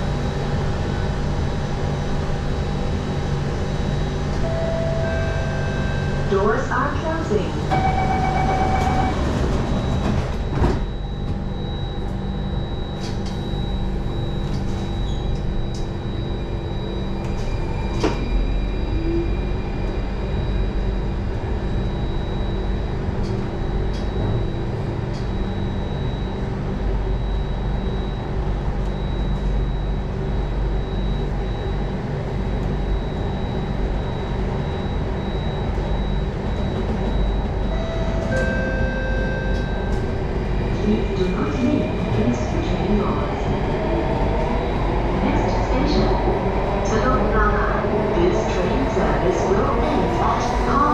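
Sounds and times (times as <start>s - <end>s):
train rumbling through tunnel: 0.0s - 50.9s
click: 14.5s - 15.9s.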